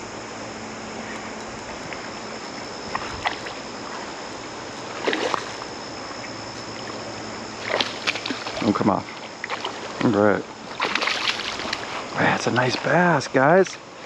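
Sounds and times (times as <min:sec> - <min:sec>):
river water running: 0:00.8 - 0:14.0
fish splashing at surface: 0:05.0 - 0:05.6, 0:10.7 - 0:11.9.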